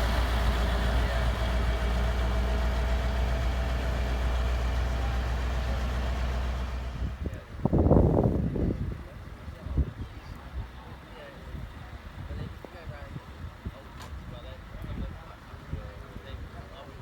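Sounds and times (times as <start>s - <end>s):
truck diesel engine idling: 0.0s - 7.3s.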